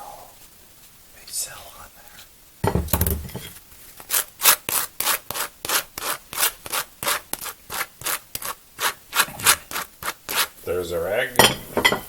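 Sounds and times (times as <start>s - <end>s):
knife scraping dry toast: 4.0s - 10.6s.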